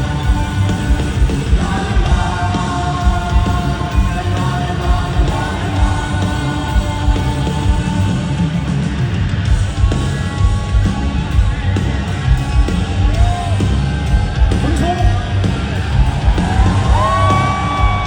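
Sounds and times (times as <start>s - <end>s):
rock band playing: 0.0s - 18.0s
audience shouting and whooping: 13.1s - 18.0s.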